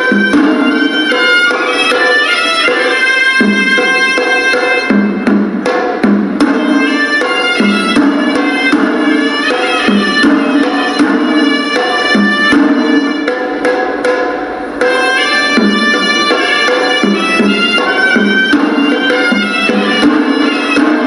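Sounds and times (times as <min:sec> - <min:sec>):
reedy double-reed pipe melody: 0:00.0 - 0:05.3, 0:06.5 - 0:21.0
drums beating brisk rhythm: 0:00.0 - 0:21.0.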